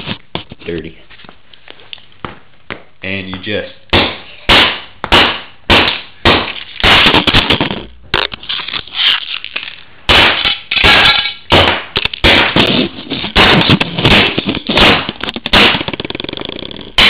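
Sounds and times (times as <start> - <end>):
plastic casing cracking: 6.5 - 9.8, 12.0 - 17.0
hammer smashing a music player: 10.1 - 16.0.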